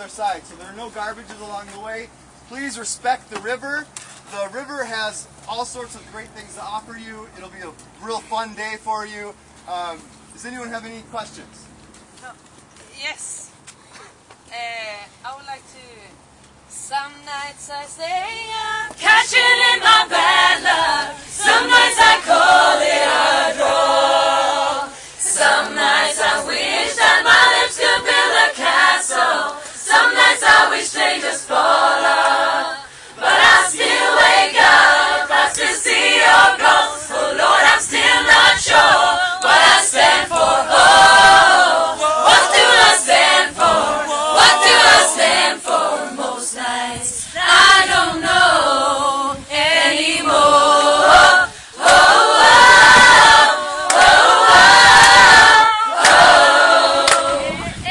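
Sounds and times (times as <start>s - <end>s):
group singing unaccompanied: 17.9s - 57.9s.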